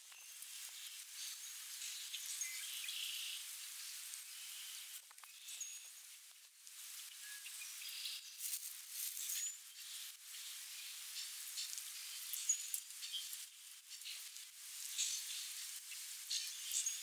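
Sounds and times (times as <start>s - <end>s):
faint clicks and rustles: 8.3s - 17.0s.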